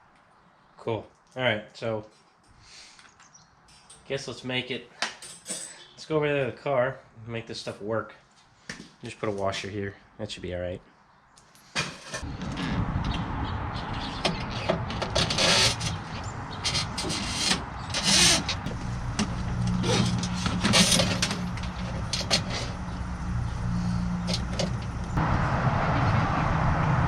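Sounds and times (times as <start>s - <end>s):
clicks and knocks of parts: 14.3s - 22.9s, 24.2s - 25.2s
motor humming: 16.8s - 25.2s.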